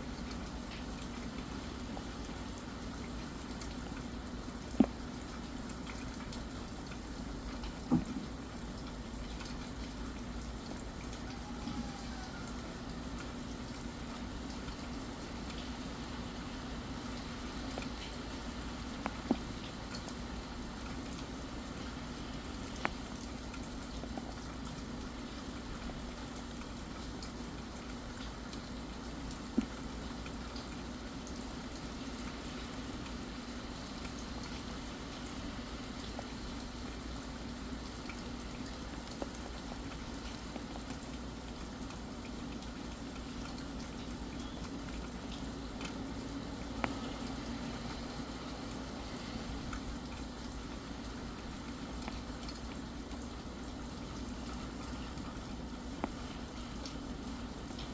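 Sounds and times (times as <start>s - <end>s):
steady rain hiss: 0.0s - 57.9s
water drips ticking: 0.0s - 57.9s.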